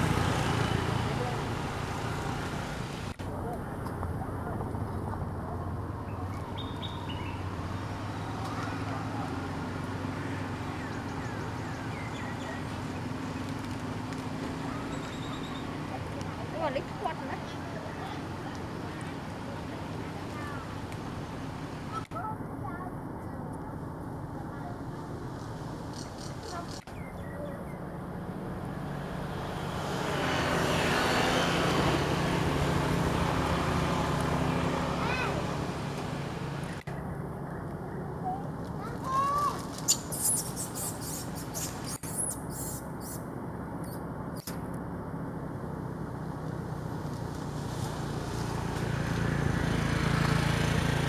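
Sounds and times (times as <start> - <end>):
low engine hum: 0.0 - 51.0.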